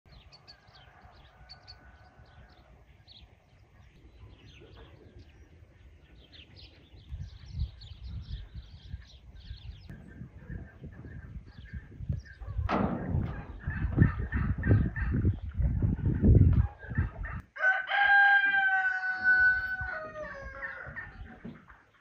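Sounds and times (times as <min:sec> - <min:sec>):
small birds chirping: 0:00.1 - 0:17.4
low rumbling noise: 0:02.3 - 0:17.4.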